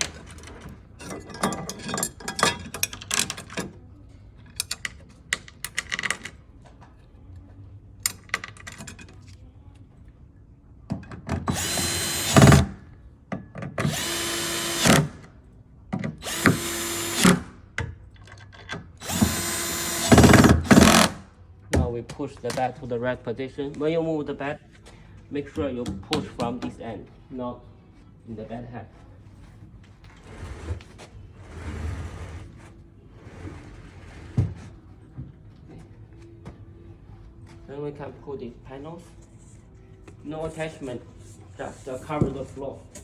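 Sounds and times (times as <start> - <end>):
power drill driving screws: 11.5 - 12.7, 13.8 - 15.2, 16.2 - 17.5, 19.0 - 21.2.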